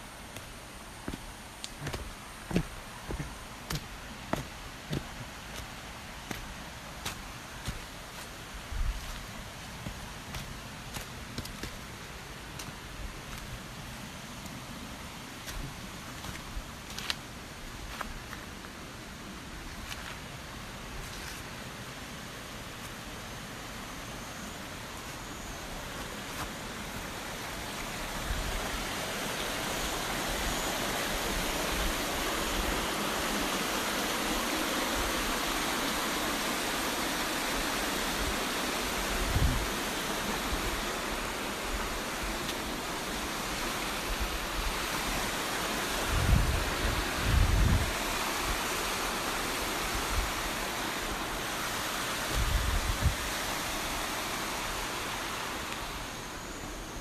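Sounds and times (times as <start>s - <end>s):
waterfall rushing: 25.6s - 56.4s.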